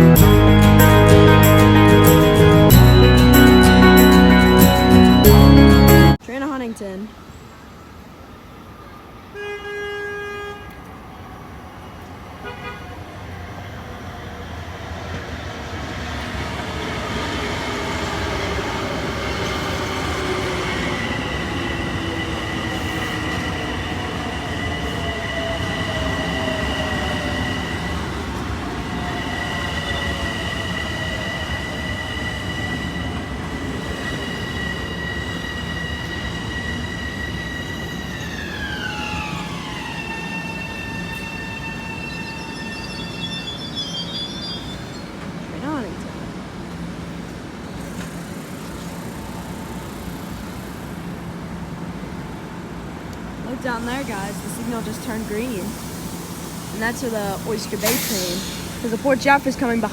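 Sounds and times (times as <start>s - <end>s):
whining tones falling in pitch: 0.0s - 6.2s
train rumbling: 0.0s - 7.0s, 10.8s - 59.9s
train horn toot: 9.3s - 10.8s, 12.4s - 13.1s
high squeal of train brakes: 15.2s - 45.8s, 53.5s - 59.9s.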